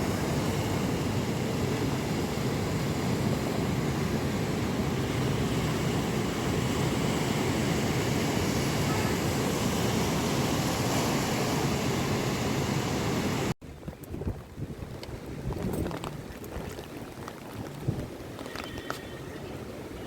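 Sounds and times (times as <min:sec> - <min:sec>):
sea surf: 0:00.0 - 0:13.6
wind rumbling on microphone: 0:00.0 - 0:20.0.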